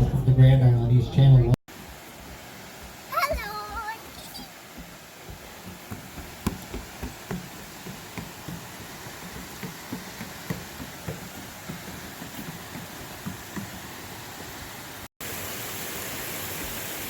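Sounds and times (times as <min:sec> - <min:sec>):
wind: 0:00.0 - 0:17.0
rushing water: 0:01.7 - 0:17.0
water slapping against boat hull: 0:04.7 - 0:14.9.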